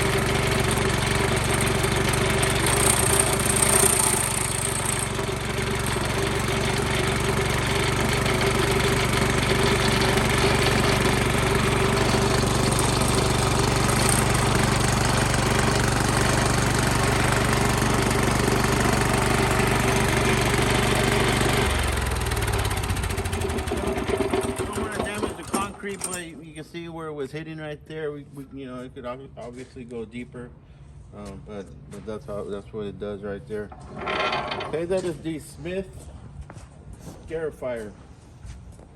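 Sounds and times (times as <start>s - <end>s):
petrol engine running: 0.0s - 26.2s.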